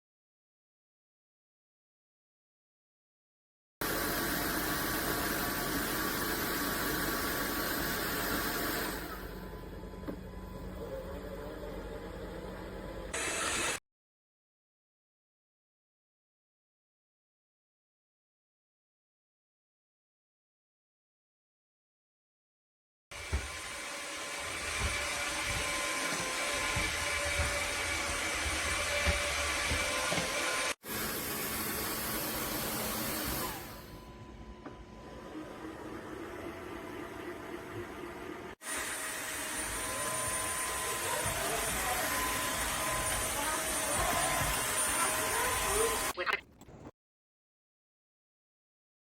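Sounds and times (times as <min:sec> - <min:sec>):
vacuum mop motor hiss: 0:13.2 - 0:13.8, 0:23.2 - 0:34.1, 0:38.6 - 0:46.2.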